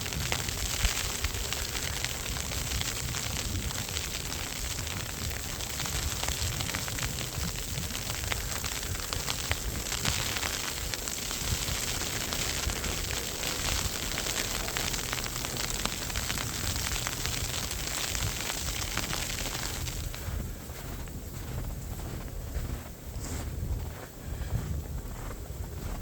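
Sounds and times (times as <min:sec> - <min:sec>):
hiss of blowing snow: 0:00.0 - 0:20.4
wind buffeting microphone: 0:00.0 - 0:26.0.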